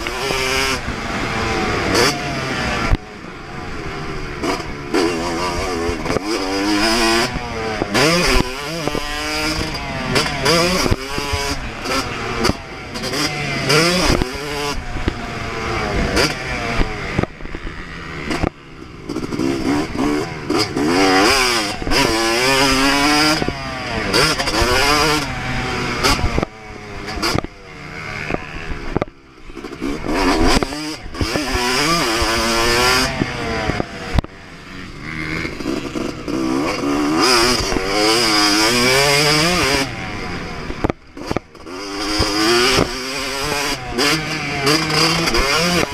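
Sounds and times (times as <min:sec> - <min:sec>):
two-stroke motocross engine revving: 0:00.0 - 0:45.9.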